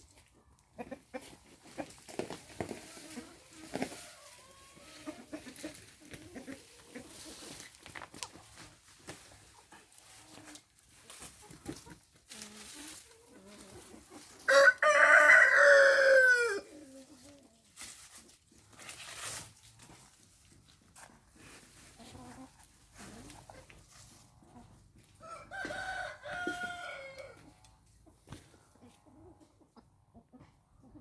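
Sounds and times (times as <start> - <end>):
chicken clucking: 0.1 - 18.4, 19.8 - 31.0
rooster crowing: 14.5 - 16.6, 25.2 - 27.4.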